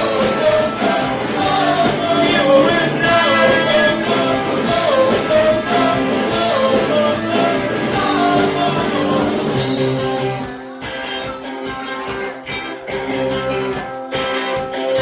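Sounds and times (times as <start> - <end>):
live rock band with guitar: 0.0 - 15.0.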